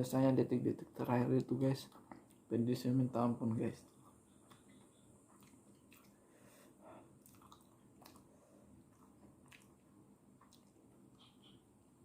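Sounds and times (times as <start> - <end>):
faint chewing: 1.4 - 2.6, 3.8 - 11.7
mouth clicks and smacks: 3.8 - 6.2, 7.2 - 8.3, 8.9 - 11.7.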